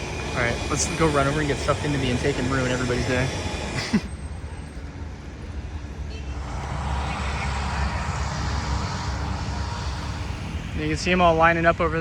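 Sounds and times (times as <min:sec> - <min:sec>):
hiss: 0:00.0 - 0:04.1, 0:06.4 - 0:11.4
jet engines rumbling: 0:00.0 - 0:12.0.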